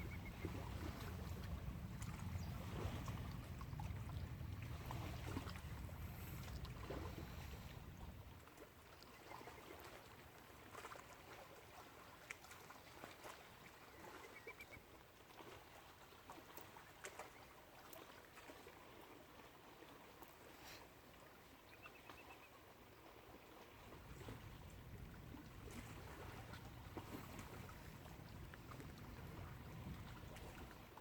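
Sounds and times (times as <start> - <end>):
low wind rumble: 0.0 - 8.5, 24.0 - 30.9
water lapping: 0.0 - 31.0.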